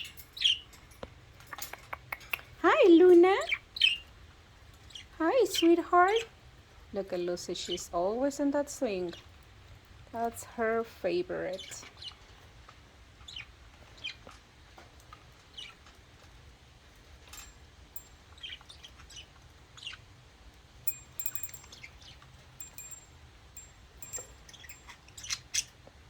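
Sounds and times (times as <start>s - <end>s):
ringing high notes: 20.9s - 21.8s, 22.6s - 24.9s.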